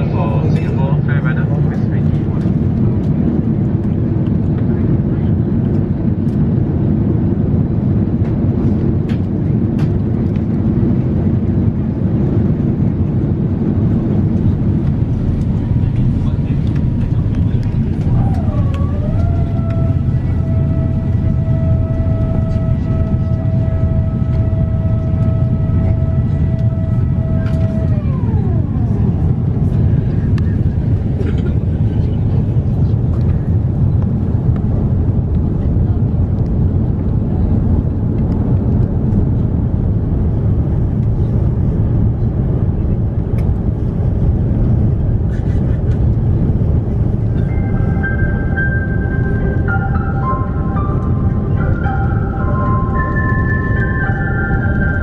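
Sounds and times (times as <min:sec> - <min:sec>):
airplane cabin rumble: 0:00.0 - 0:55.0
held tone sliding down: 0:18.1 - 0:29.0.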